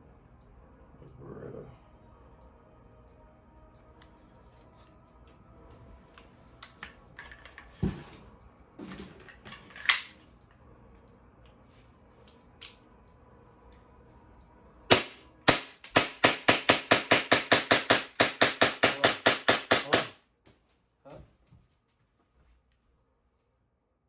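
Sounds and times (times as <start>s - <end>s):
airsoft pistol shots: 14.9s - 20.2s.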